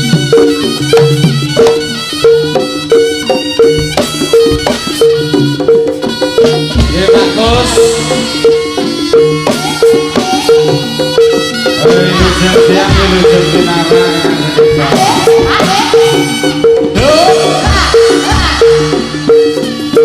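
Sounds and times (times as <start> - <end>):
drums: 0.0 - 20.0
struck pitched percussion: 0.0 - 20.0
heavy low drum strokes: 6.6 - 8.9, 16.8 - 19.3.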